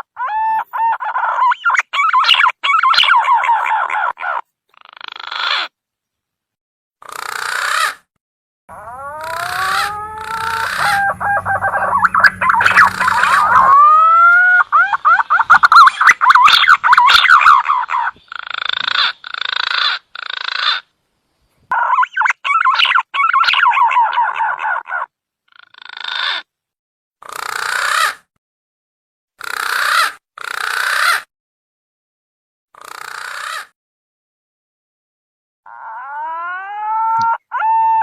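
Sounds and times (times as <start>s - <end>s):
pigeon whistling and warbling: 0.2s - 4.2s, 8.8s - 18.2s, 21.8s - 24.6s
hoarse grating bird notes: 8.7s - 13.8s.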